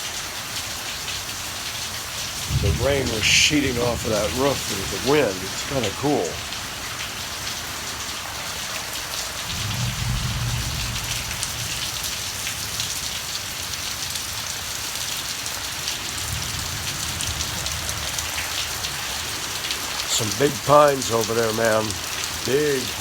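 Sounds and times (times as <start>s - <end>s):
heavy rain pouring: 0.0s - 23.0s
thunder rumbling: 2.4s - 6.6s, 9.5s - 12.4s.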